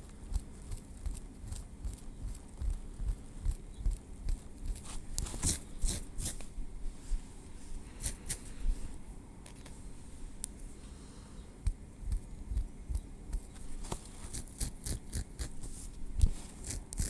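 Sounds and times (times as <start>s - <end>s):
tweezers scratching through hair: 0.0s - 2.7s, 3.4s - 6.6s, 8.0s - 8.5s, 12.1s - 17.0s.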